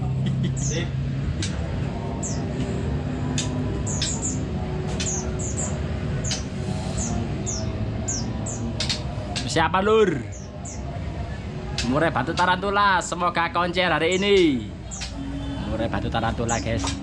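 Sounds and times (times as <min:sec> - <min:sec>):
songbirds chirping: 0:00.0 - 0:17.0
steady background din: 0:00.0 - 0:17.0.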